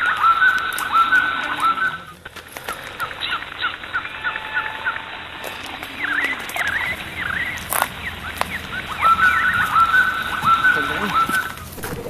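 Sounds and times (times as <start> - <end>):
bird chirping: 0.0 - 12.0
bird whistled notes: 6.0 - 11.7.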